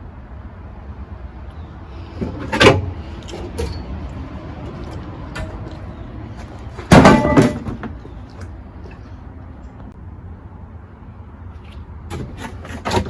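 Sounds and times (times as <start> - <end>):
metallic clatter: 2.1 - 8.2
metallic knocks: 6.8 - 8.2.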